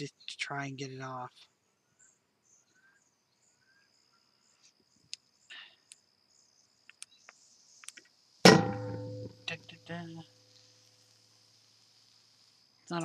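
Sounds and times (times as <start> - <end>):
crickets trilling: 0.0 - 13.0
faint clicks: 6.8 - 8.2.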